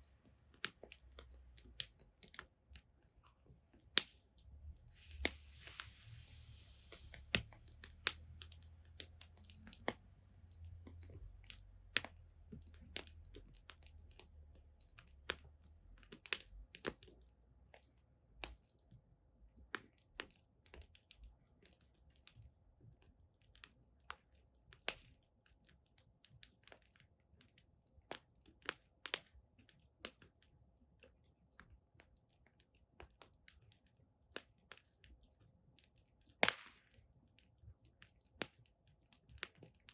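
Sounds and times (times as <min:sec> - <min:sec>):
firewood crackling and popping: 0:00.0 - 0:39.9
low fire rumble: 0:03.6 - 0:17.0.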